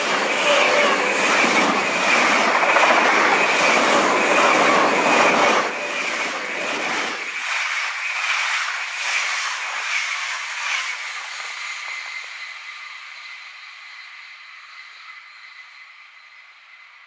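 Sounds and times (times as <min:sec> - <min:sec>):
wheels rolling on rails: 0:00.0 - 0:12.4
electric train passing at speed: 0:00.0 - 0:17.0.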